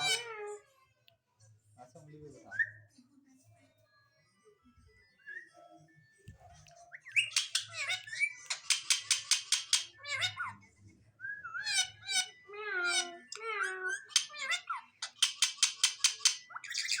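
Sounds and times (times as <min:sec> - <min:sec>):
parrot screeching: 0:00.0 - 0:00.6, 0:07.2 - 0:10.6, 0:11.5 - 0:17.0.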